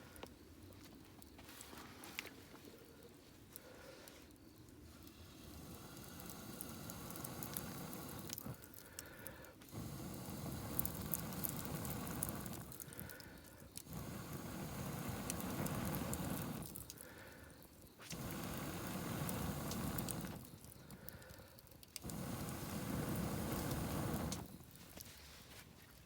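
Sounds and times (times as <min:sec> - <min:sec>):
campfire crackling: 0:00.0 - 0:26.0.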